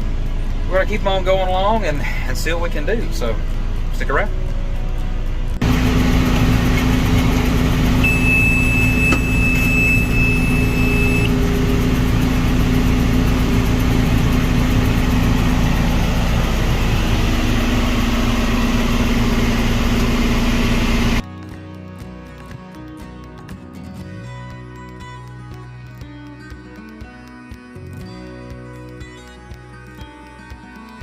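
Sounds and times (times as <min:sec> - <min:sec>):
tractor diesel engine running: 0:00.0 - 0:21.2
round baler working: 0:05.6 - 0:21.2
high electronic beep: 0:08.0 - 0:11.4.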